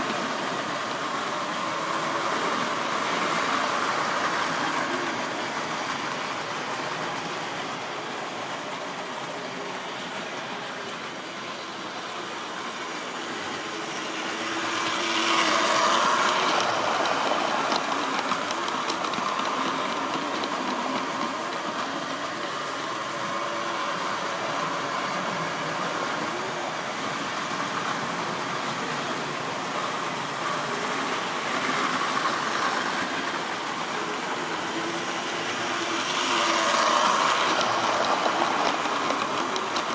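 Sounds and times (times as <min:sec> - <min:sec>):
model train motor humming: 0:00.0 - 0:39.9
wheels clicking on rail joints: 0:00.0 - 0:39.9
wheels clattering over rails: 0:13.4 - 0:26.5, 0:27.1 - 0:39.9.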